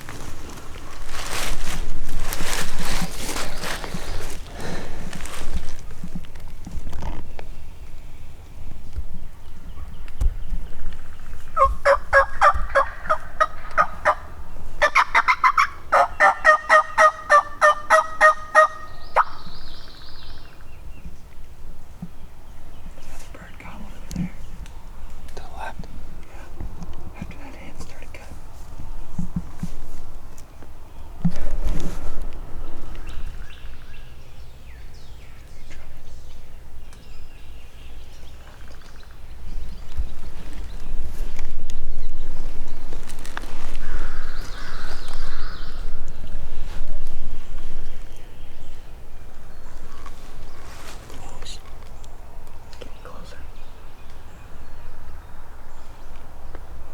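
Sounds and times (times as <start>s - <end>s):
songbirds chirping: 0.0s - 56.9s
turkey yelping: 11.6s - 19.4s.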